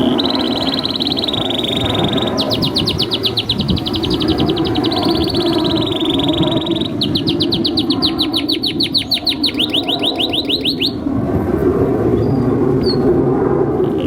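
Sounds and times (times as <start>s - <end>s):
canary singing trill: 0.0s - 11.1s.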